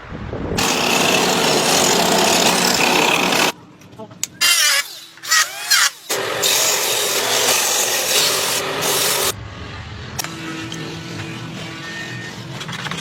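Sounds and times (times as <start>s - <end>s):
tool squealing: 0.6s - 3.6s
woodworking tools cutting wood: 0.6s - 3.6s, 4.4s - 9.4s.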